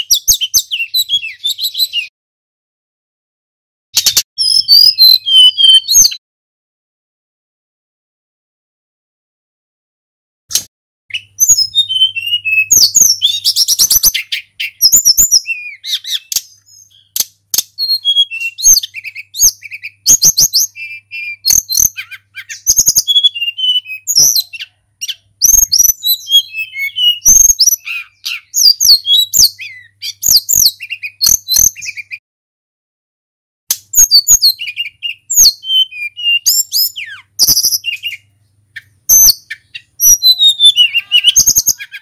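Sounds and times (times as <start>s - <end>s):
flycatcher singing: 4.0s - 6.2s, 11.1s - 32.2s, 33.9s - 42.0s.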